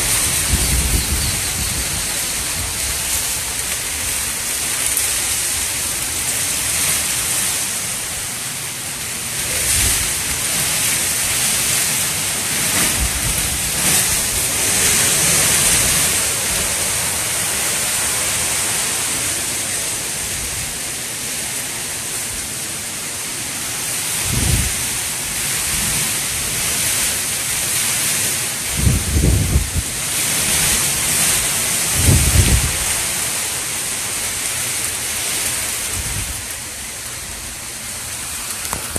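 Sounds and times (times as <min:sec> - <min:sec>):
wind gusts buffeting microphone: 0:00.0 - 0:05.7, 0:09.4 - 0:18.9, 0:24.2 - 0:27.2, 0:28.6 - 0:33.1, 0:35.8 - 0:36.5
hurricane wind and driving rain: 0:00.0 - 0:38.9.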